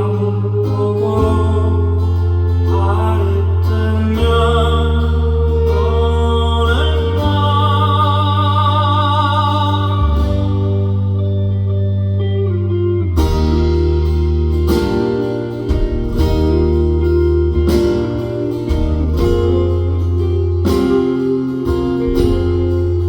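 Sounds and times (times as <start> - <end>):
band playing: 0.0 - 23.0.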